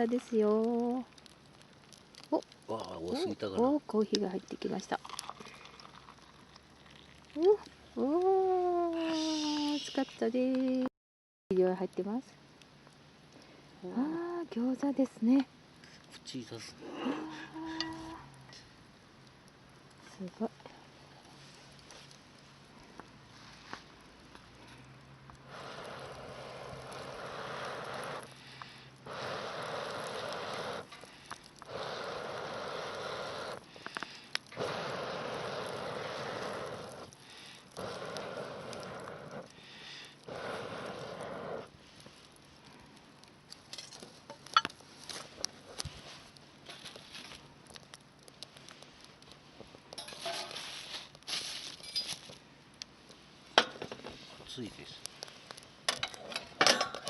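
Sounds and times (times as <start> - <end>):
rustling: 21.1 - 52.5
person blowing long puffs: 25.5 - 41.7.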